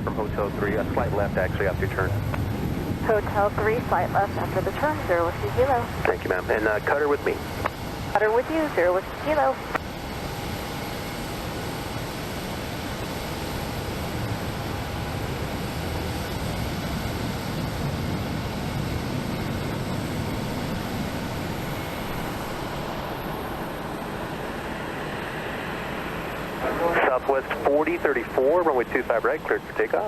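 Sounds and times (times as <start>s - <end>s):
jet engine rushing: 0.0s - 10.3s, 17.5s - 30.0s.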